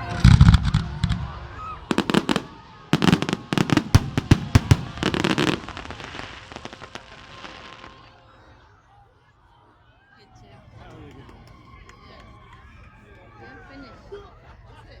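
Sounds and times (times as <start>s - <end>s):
fireworks cracks and bangs: 0.0s - 8.2s
fireworks crackling: 0.0s - 8.4s.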